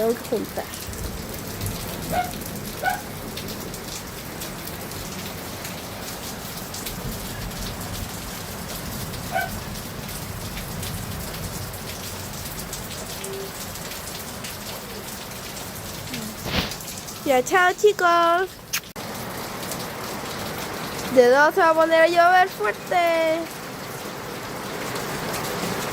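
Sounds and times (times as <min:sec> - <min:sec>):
steady rain falling: 0:00.0 - 0:25.9.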